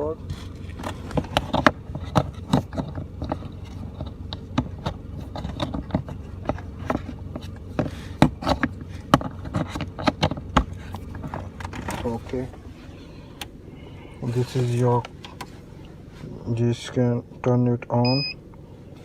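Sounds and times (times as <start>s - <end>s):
steady low hum: 0.0s - 19.0s
cable clicks and rattles: 0.2s - 12.6s.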